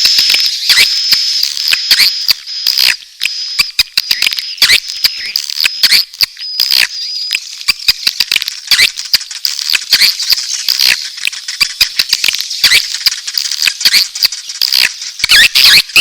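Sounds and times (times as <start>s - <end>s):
swiftlets chattering: 7.6s - 16.0s.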